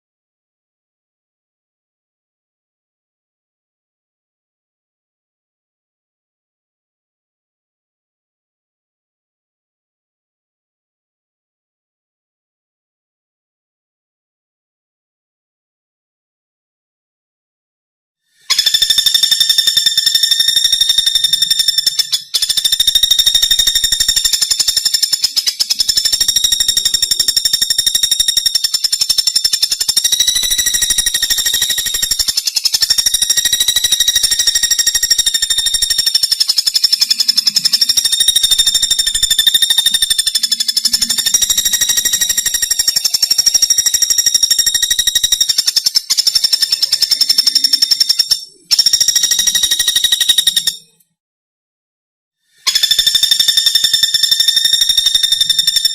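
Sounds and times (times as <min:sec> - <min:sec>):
woodpecker rapid trill: 0:18.4 - 0:51.0, 0:52.5 - 0:55.9.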